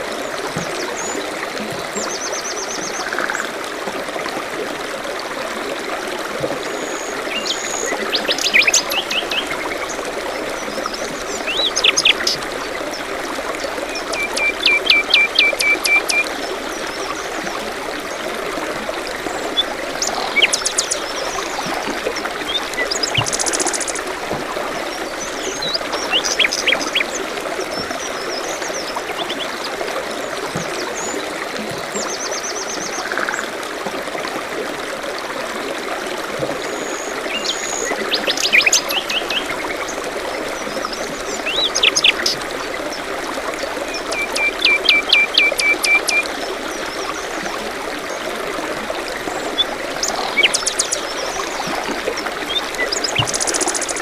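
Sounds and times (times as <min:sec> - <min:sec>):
water trickling: 0:00.0 - 0:54.0
songbirds calling: 0:06.7 - 0:18.3, 0:19.3 - 0:33.4, 0:36.7 - 0:48.2, 0:49.3 - 0:54.0.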